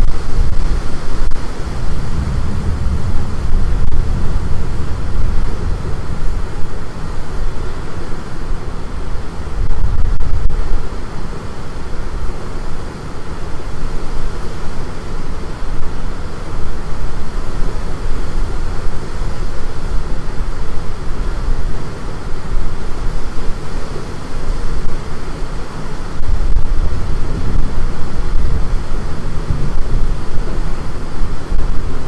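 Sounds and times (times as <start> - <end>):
storm wind gusting: 0.0 - 32.0.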